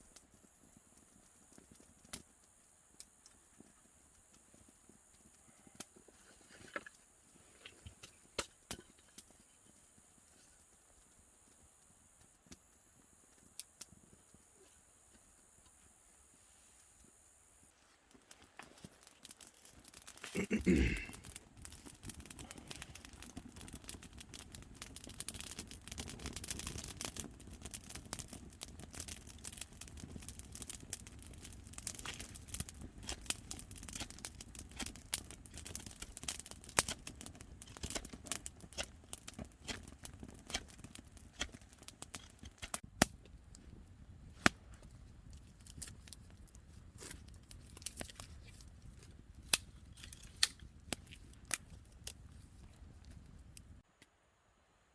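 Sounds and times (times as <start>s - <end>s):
steady rain hiss: 0.0s - 23.2s.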